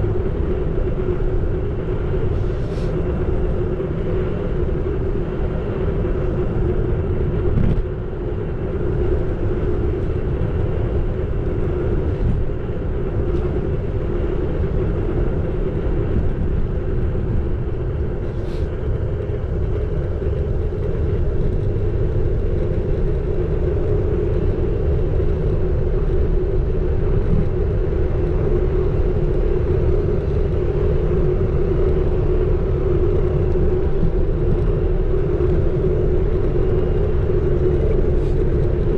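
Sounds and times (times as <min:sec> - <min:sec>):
road and wind rumble: 0:00.0 - 0:38.9.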